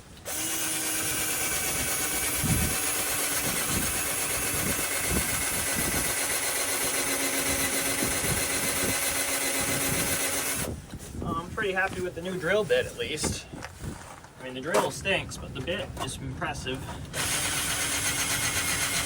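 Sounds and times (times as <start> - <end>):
cordless drill boring: 0.1 - 10.7, 17.1 - 19.0.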